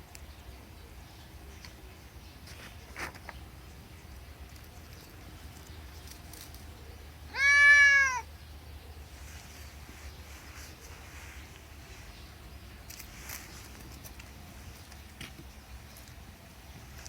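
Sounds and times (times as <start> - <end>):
cat meowing: 7.3 - 8.3.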